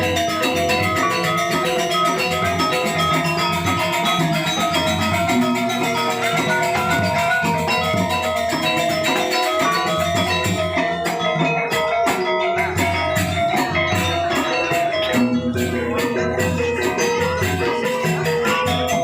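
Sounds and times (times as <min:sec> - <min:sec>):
gamelan playing: 0:00.0 - 0:19.0.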